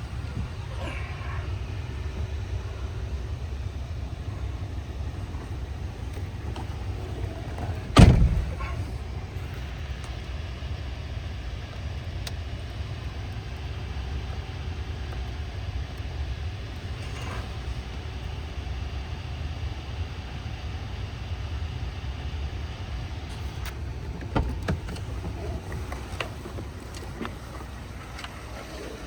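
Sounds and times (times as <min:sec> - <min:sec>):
truck engine rumbling: 0:00.0 - 0:18.7, 0:23.0 - 0:29.0.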